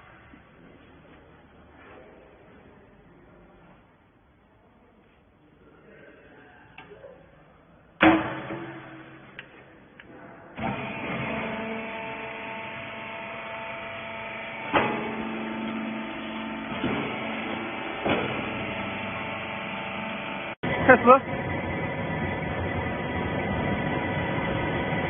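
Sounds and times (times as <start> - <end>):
sharp mechanical knocks: 8.0 - 9.5
hydraulic unit hum and whine: 8.0 - 25.0.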